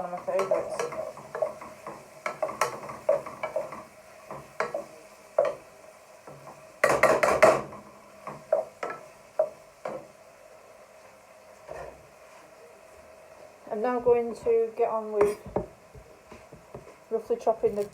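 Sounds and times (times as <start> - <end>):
spoon scraping frying pan: 0.0 - 10.1, 11.6 - 12.4.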